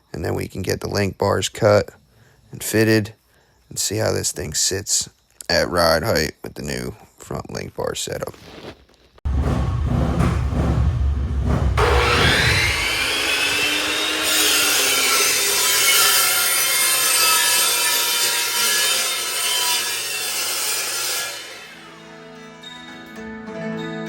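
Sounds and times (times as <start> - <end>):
power saw cutting metal: 11.8 - 22.3.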